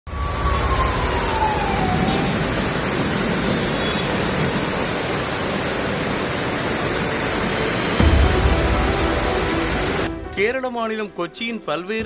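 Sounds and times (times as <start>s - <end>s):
vehicle siren falling in pitch: 0.1s - 3.0s
heavy rain pouring: 0.1s - 11.2s.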